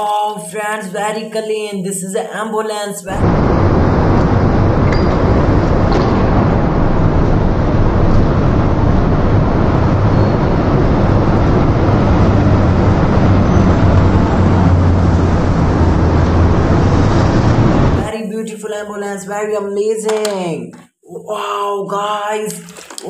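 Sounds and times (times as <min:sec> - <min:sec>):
loud steady rumbling hum: 0:03.2 - 0:18.1.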